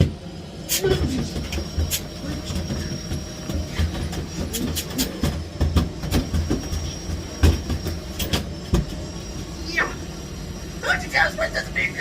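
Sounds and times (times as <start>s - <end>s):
vacuum cleaner whine: 0.0s - 12.0s
vacuum floor head knocking: 5.2s - 8.9s.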